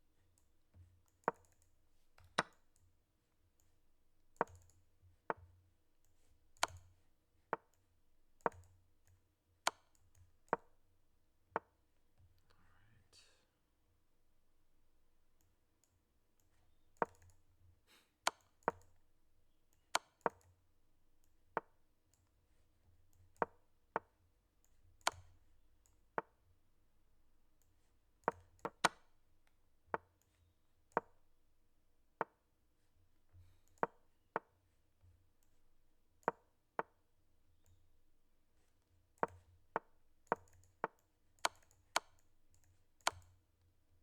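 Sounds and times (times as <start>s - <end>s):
chess move clicks: 28.2s - 29.1s.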